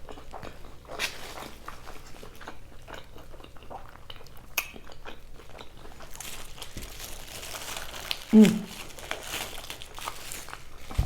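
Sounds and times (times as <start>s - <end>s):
close chewing with wet mouth clicks: 0.0s - 7.2s.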